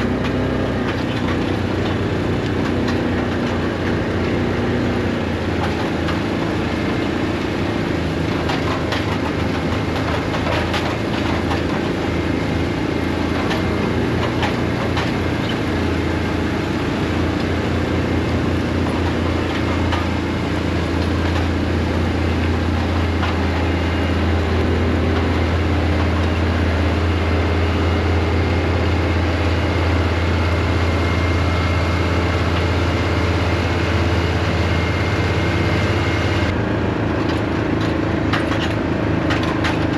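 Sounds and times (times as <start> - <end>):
tractor diesel engine under load: 0.0 - 39.9
clicks and rattles: 5.0 - 26.4.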